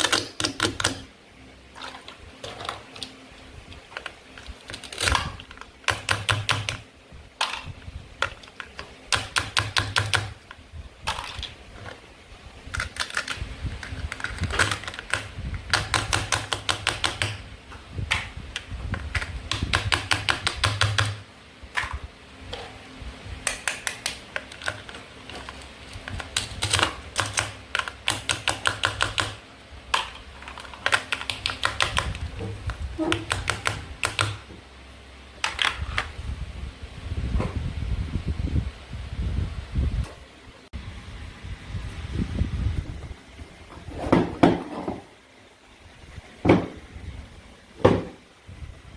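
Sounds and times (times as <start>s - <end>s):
toy food being cut clicking: 0.0s - 1.1s, 12.8s - 17.4s, 19.1s - 21.2s, 23.4s - 25.0s, 26.2s - 29.4s, 30.8s - 32.2s, 33.1s - 34.4s.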